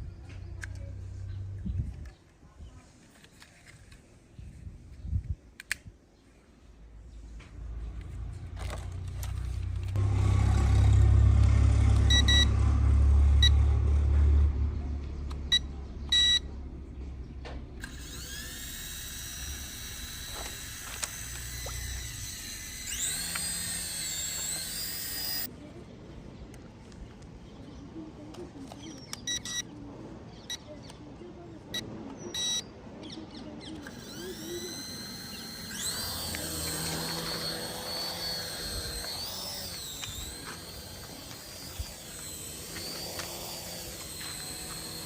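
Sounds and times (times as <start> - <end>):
toy helicopter motors whining: 8.6 - 12.4, 17.8 - 25.5, 33.7 - 45.0
short high beeps: 12.1 - 12.5, 15.5 - 16.5, 29.3 - 29.6, 32.3 - 32.7.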